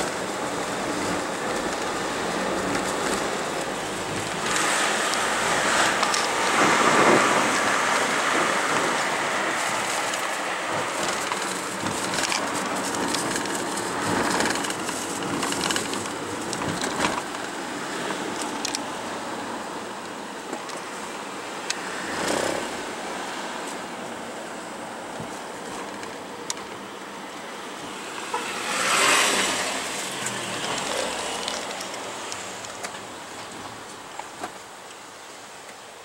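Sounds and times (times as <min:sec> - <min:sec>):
steady rushing background: 0:00.0 - 0:18.8
cars passing: 0:00.0 - 0:36.0.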